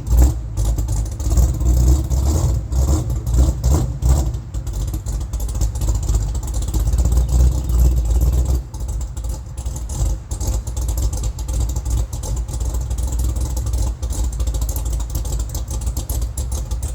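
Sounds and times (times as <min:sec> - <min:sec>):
vee eight engine idling rumble: 0:00.0 - 0:16.9.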